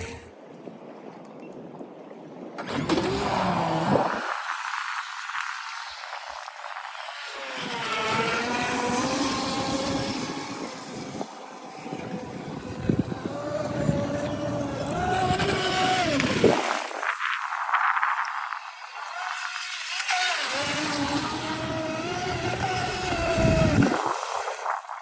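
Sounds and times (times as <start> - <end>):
speedboat motor whine: 0.0 - 0.5, 2.5 - 25.0.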